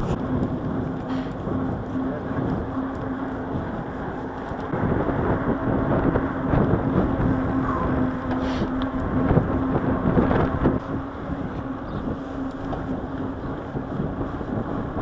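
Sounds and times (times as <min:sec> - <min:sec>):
steady low hum: 0:00.0 - 0:15.0
wind on microphone: 0:00.0 - 0:15.0.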